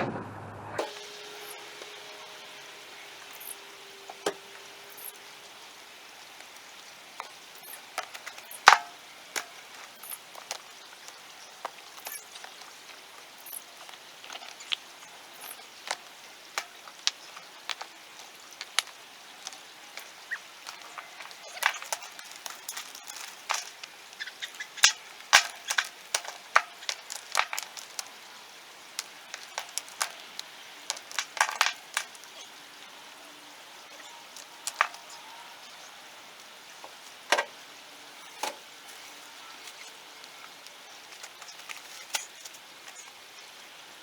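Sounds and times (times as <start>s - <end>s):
background hiss: 0.8s - 44.0s
rocks clacking as stacked: 3.2s - 4.7s, 6.3s - 32.6s, 34.0s - 35.3s, 36.8s - 37.6s, 38.3s - 43.2s.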